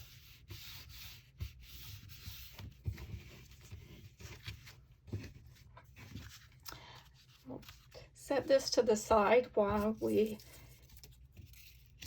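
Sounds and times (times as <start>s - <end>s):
paper rubbing: 0.0s - 8.0s.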